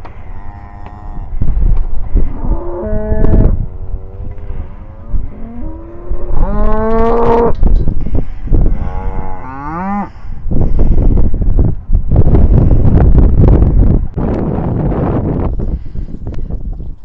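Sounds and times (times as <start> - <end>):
wind rumbling on microphone: 0.0 - 17.0
cattle mooing: 0.1 - 1.4, 2.2 - 7.6, 8.8 - 10.2.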